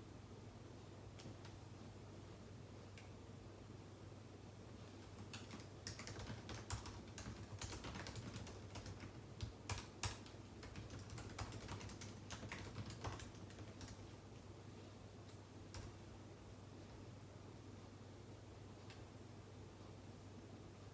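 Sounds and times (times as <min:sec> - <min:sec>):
keyboard typing: 0:04.9 - 0:14.1, 0:15.2 - 0:16.0.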